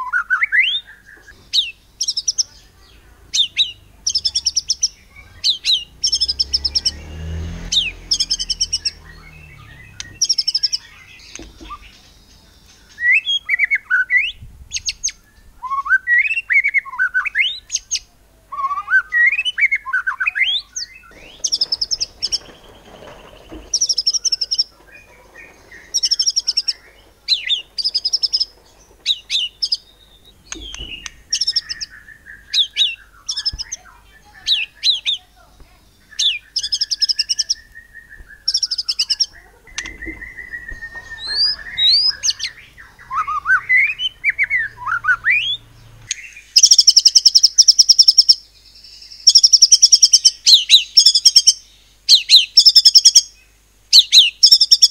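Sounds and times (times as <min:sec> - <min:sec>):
bird singing varied whistled song: 0:07.7 - 0:24.8, 0:29.1 - 0:35.3, 0:35.9 - 0:54.9.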